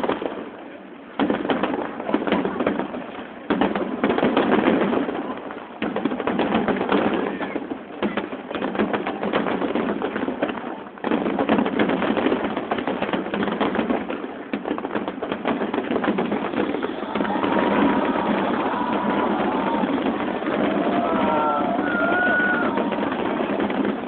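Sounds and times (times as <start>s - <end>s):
fireworks crackling and popping: 0.0s - 24.0s.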